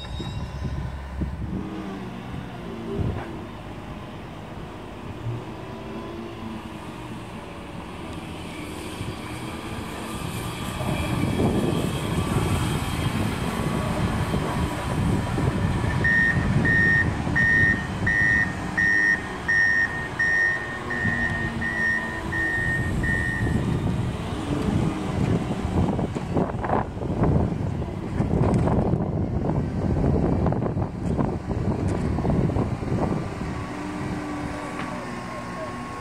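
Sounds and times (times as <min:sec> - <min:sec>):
high electronic warning beep: 0:00.0 - 0:01.0, 0:16.0 - 0:23.6
train wheels rumbling on rails: 0:00.0 - 0:03.8, 0:06.4 - 0:20.2.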